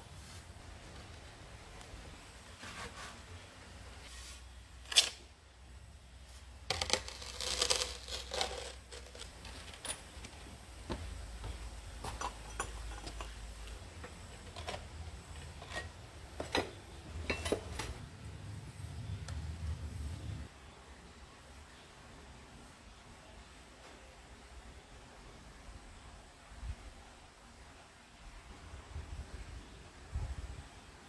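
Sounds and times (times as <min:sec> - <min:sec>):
pottery clinking and knocking: 0:10.9 - 0:18.0.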